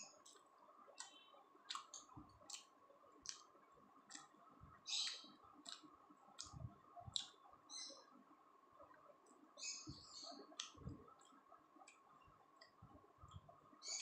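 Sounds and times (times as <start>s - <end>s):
faint steady whine: 0.0s - 14.0s
wet mouth clicks of chewing: 0.1s - 3.5s, 4.1s - 4.4s, 5.0s - 7.4s, 10.3s - 12.0s.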